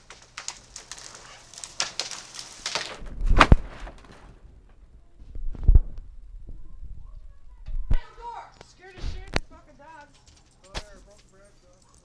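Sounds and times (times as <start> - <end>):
tree thudding on ground: 0.0 - 4.5
wood and branches snapping: 0.0 - 4.8, 7.9 - 12.0.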